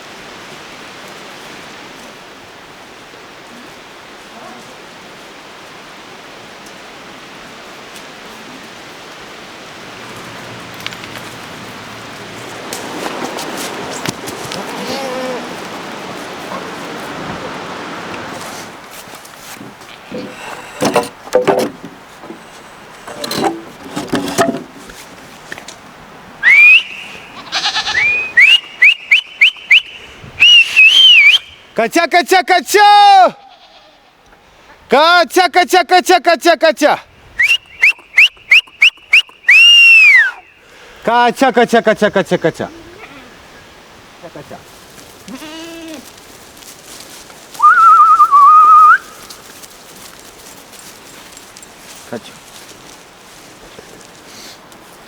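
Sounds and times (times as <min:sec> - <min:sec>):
person whistling warbling note: 0:26.4 - 0:27.0, 0:47.6 - 0:49.0
person whistling loudly: 0:26.4 - 0:27.2, 0:27.9 - 0:31.5, 0:37.4 - 0:40.5, 0:47.6 - 0:49.2.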